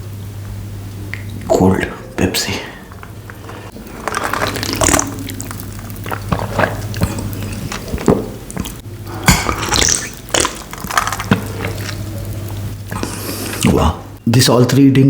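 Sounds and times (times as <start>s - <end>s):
steady low hum: 0.0s - 14.8s
person gulping a drink: 2.6s - 14.2s.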